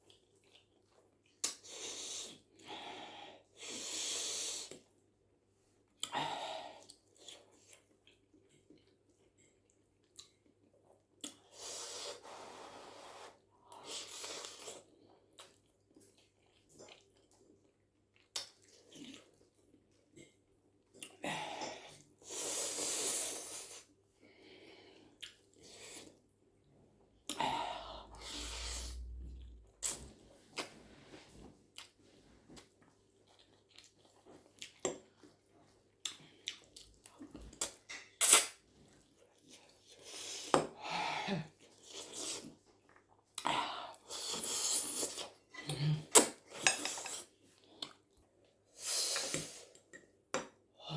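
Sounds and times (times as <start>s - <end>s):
chewing with mouth clicks: 0.0s - 2.4s, 6.8s - 11.6s, 13.8s - 21.2s, 25.2s - 26.2s, 31.7s - 40.2s, 41.6s - 48.6s.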